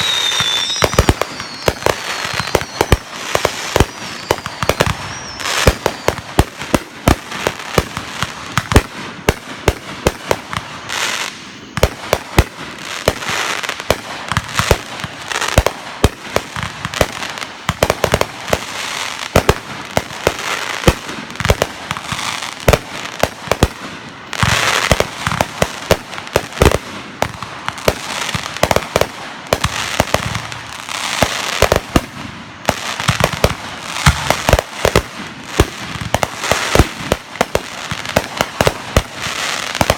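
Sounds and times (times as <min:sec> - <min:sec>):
fireworks bangs and cracks: 0:00.0 - 0:39.9
fireworks crackling and hissing: 0:00.0 - 0:39.9.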